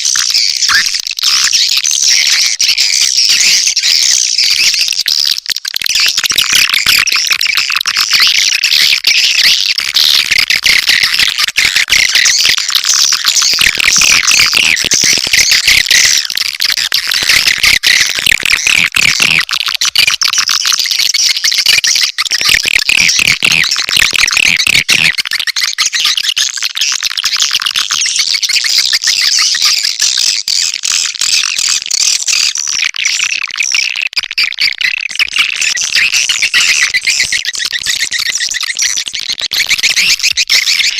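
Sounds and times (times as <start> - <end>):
swiftlets twittering: 0.2 - 1.7.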